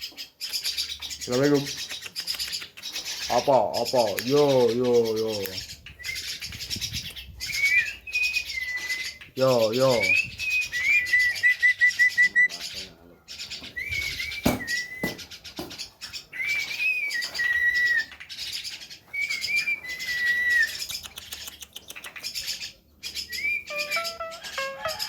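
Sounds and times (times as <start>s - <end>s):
myna whistling: 7.0s - 12.5s, 13.7s - 15.2s, 16.3s - 18.1s, 19.1s - 20.9s, 23.3s - 25.0s
music: 23.7s - 25.0s.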